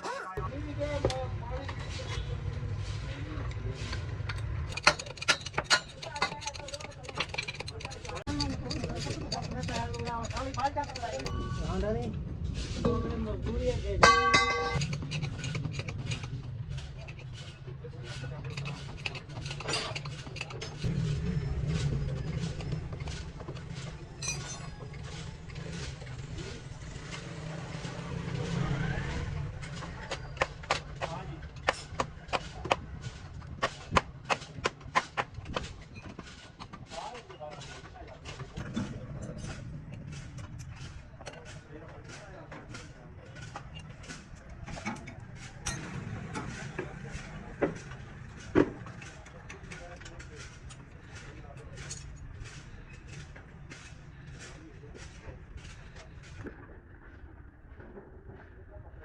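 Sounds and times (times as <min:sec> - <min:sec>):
vehicle engine rumbling: 0:00.4 - 0:59.0
tools clicking and knocking: 0:03.5 - 0:11.4, 0:14.0 - 0:17.7, 0:18.3 - 0:20.9, 0:29.6 - 0:54.0.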